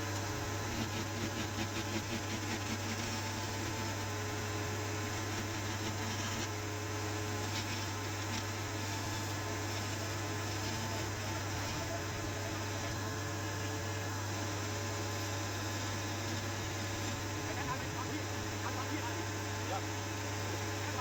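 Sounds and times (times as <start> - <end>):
low electrical hum: 0.0 - 21.0
light rapid scratching: 0.7 - 4.0.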